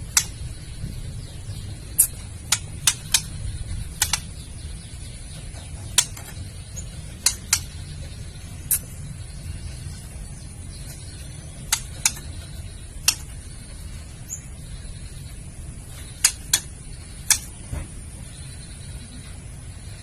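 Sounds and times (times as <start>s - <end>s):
low background rumble: 0.0s - 20.0s
bird clicking call: 2.0s - 3.4s, 4.0s - 4.3s, 11.6s - 13.4s.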